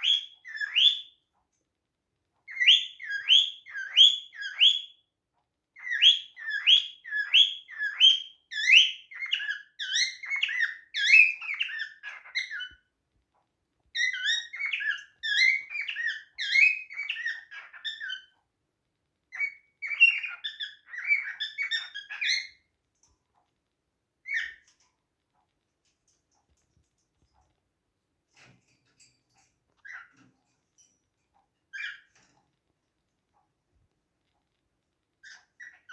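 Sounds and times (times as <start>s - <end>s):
cockatiel chirping: 0.0s - 1.2s, 2.4s - 5.0s, 5.8s - 12.9s, 13.9s - 18.4s, 19.3s - 22.7s, 24.2s - 24.8s, 29.8s - 30.3s, 31.7s - 32.2s, 35.2s - 35.9s.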